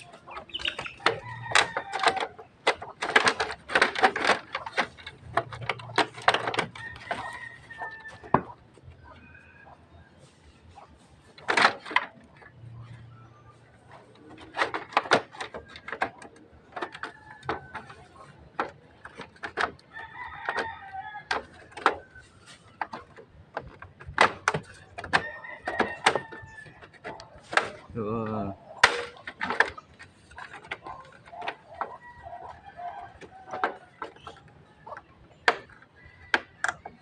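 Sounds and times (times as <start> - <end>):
sharp clicks and knocks: 0.0 - 9.3, 11.2 - 37.0.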